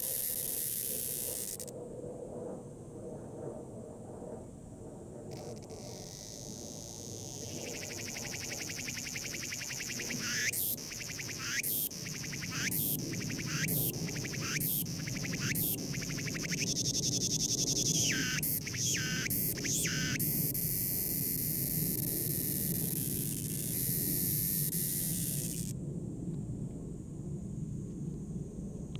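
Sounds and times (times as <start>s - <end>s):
cicada buzzing: 0.0s - 1.7s, 5.3s - 25.8s.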